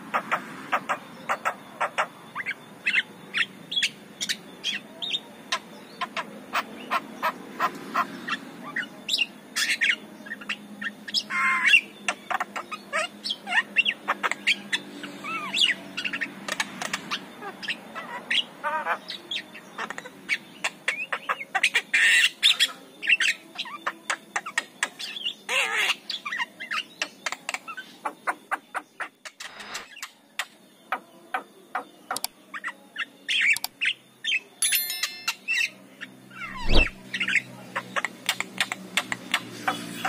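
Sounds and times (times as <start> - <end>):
bird whistling and chirping: 36.4 - 37.0.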